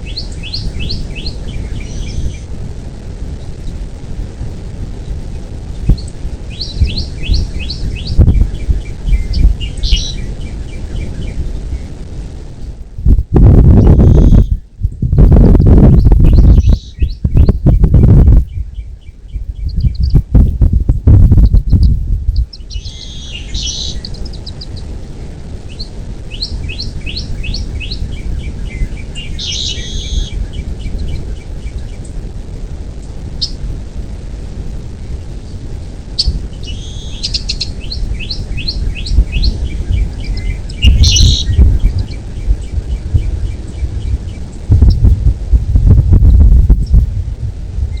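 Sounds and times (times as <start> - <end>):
eagle piping calls: 0.0 - 2.4, 5.9 - 11.9, 13.6 - 14.6, 15.5 - 20.3, 21.4 - 24.9, 25.7 - 32.1, 36.2 - 45.1
low rumble: 0.0 - 48.0
bird chattering bursts: 6.0 - 11.4, 13.8 - 14.6, 21.4 - 24.9, 25.7 - 31.5, 36.2 - 45.1.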